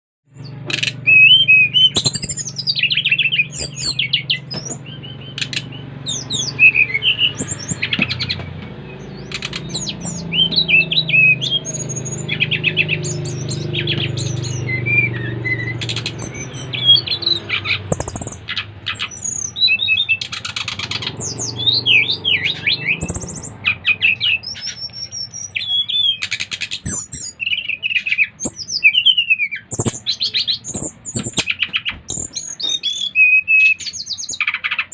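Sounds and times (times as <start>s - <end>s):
flycatchers singing: 0.3s - 34.9s
steady low hum: 13.0s - 19.5s.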